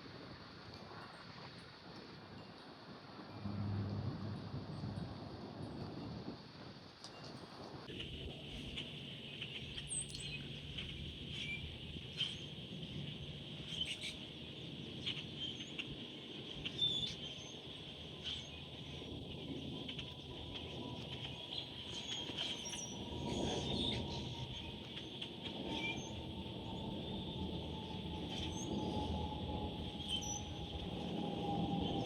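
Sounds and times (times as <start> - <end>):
steady low rumble: 3.3 - 6.4.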